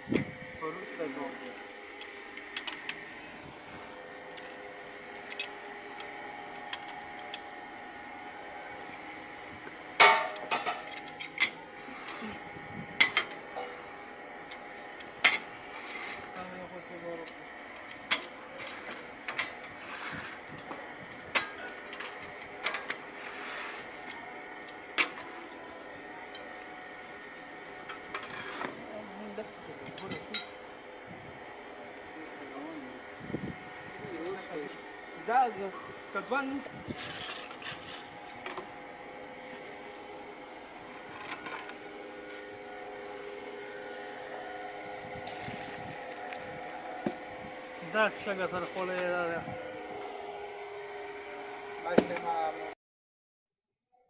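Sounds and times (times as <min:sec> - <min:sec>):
machine hum: 0:00.0 - 0:52.8
scraping rustles: 0:15.6 - 0:16.6, 0:18.5 - 0:20.6, 0:23.0 - 0:24.1, 0:36.6 - 0:38.8, 0:39.4 - 0:52.4.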